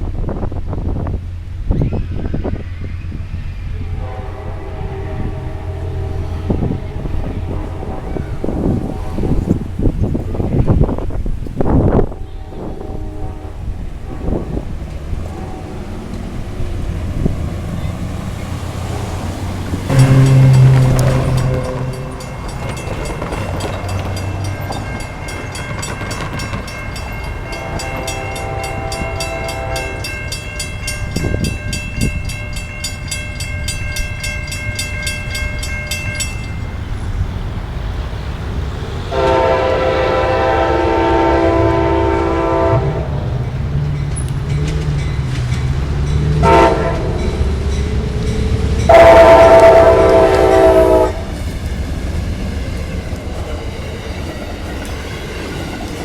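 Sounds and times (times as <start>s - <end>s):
train rumbling: 0.0s - 56.0s
train horn blasts: 3.7s - 9.8s, 11.8s - 16.6s, 17.2s - 25.0s, 26.3s - 32.1s, 39.1s - 43.5s, 46.2s - 47.8s, 48.8s - 51.3s
crossing bell ringing: 4.0s - 10.2s, 14.1s - 37.3s, 39.1s - 51.8s.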